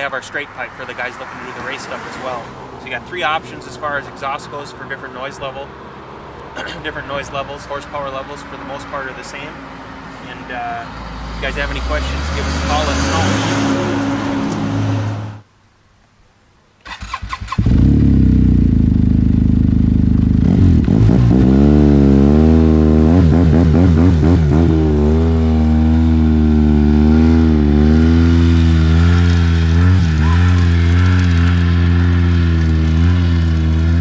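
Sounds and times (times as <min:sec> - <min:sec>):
snowmobile engine cranking and idling: 0:16.8 - 0:34.0.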